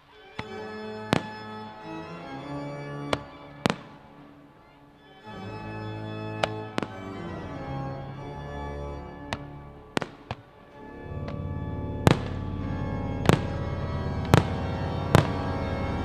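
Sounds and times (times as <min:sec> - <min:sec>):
organ music with held chords: 0:00.0 - 0:16.0
firework bangs: 0:03.1 - 0:04.3, 0:09.3 - 0:16.0.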